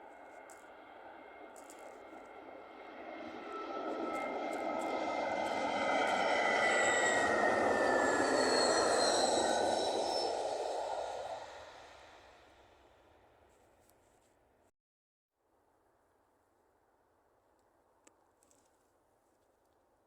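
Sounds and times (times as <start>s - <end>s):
jet airliner passing: 0.0s - 13.2s
high engine whine: 0.0s - 13.3s.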